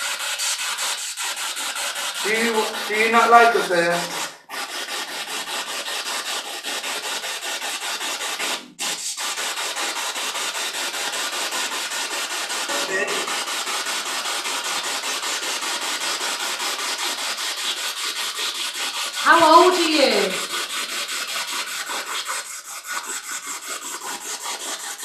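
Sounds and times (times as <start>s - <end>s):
snatch of radio broadcast: 2.3s - 4.1s, 12.7s - 13.5s, 19.3s - 20.5s
radio static pulsing: 12.7s - 13.4s.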